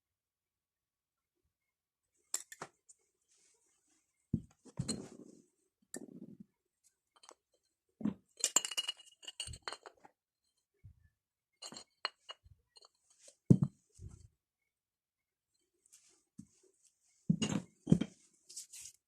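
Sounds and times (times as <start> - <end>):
hard objects clinking: 8.4 - 10.0.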